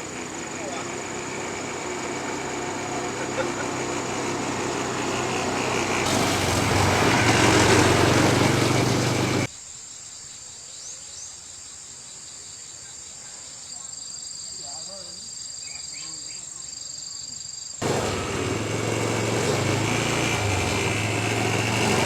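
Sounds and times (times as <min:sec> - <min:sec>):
small engine running: 0:00.0 - 0:09.5, 0:17.8 - 0:22.0
high buzzing of insects: 0:00.0 - 0:19.8.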